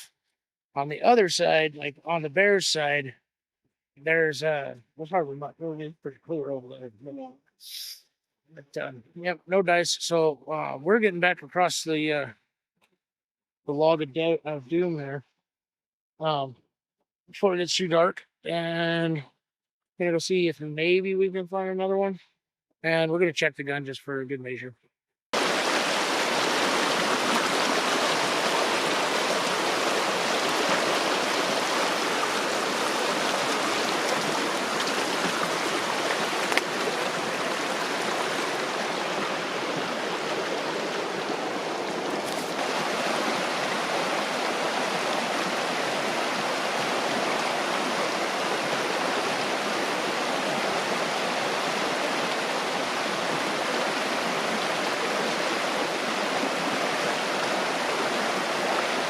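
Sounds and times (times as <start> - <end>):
creek water rushing: 25.4 - 59.0.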